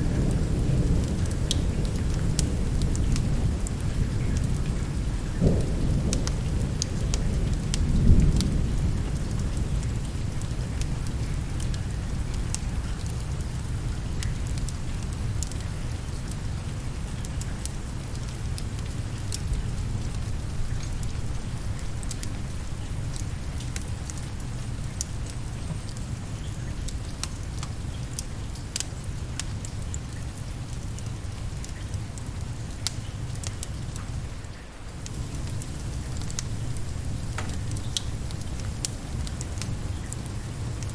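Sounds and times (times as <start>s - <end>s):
steady rain: 0.0s - 40.9s
wood fire crackling: 21.0s - 40.9s.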